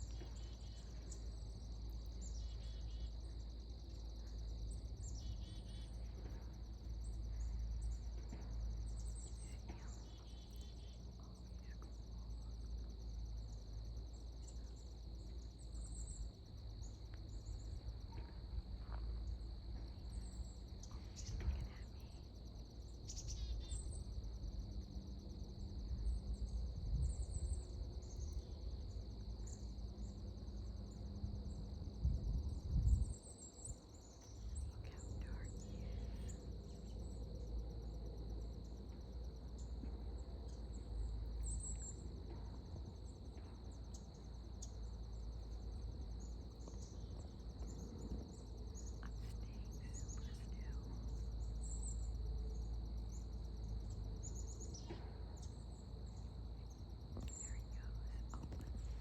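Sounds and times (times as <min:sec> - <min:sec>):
insects trilling: 0:00.0 - 0:59.0
low rumbling noise: 0:57.3 - 0:59.0.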